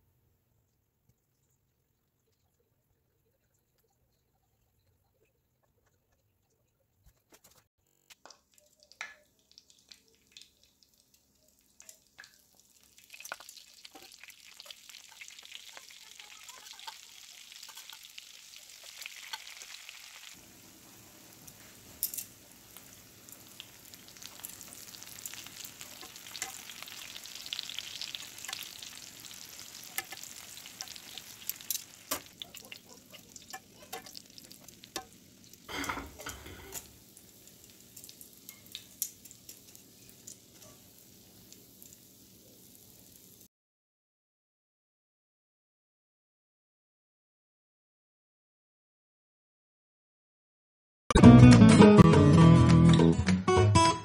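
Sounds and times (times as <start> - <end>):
mushrooms sizzling in fat: 7.8 - 43.5
metal tongs clicking on pan: 11.8 - 12.4, 16.5 - 18.1, 21.5 - 22.4, 23.6 - 27.2, 28.2 - 37.0, 38.0 - 40.8.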